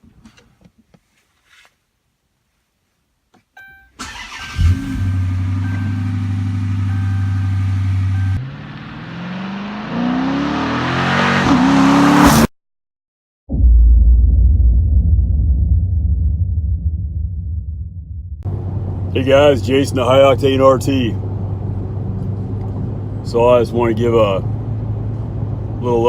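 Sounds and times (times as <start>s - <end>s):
car engine starting and idling: 3.9s - 9.8s
car engine revving: 4.0s - 12.5s
electronic chime: 5.6s - 8.5s.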